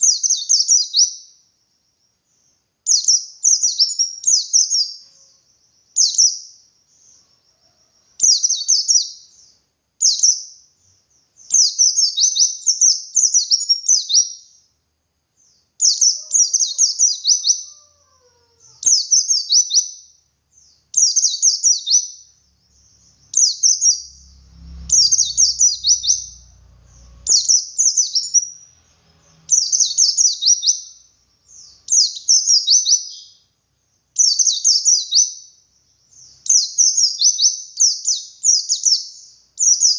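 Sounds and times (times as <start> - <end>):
bird singing rapid high notes: 21.0 - 33.4.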